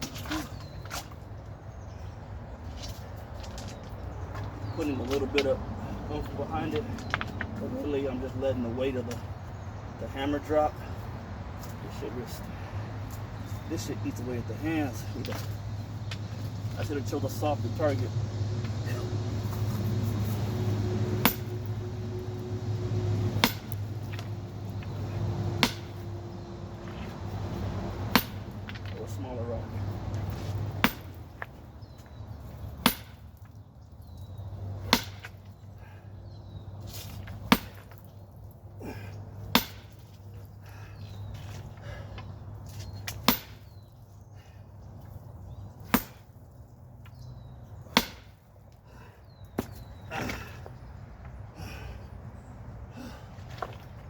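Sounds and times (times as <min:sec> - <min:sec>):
sledgehammer striking rock: 0:21.2 - 0:21.7, 0:23.4 - 0:24.3, 0:25.6 - 0:26.0, 0:28.1 - 0:28.8, 0:30.8 - 0:31.2, 0:32.8 - 0:33.4, 0:34.8 - 0:35.4, 0:37.4 - 0:38.1, 0:39.5 - 0:40.1, 0:43.1 - 0:43.9, 0:45.8 - 0:46.3, 0:47.9 - 0:48.4.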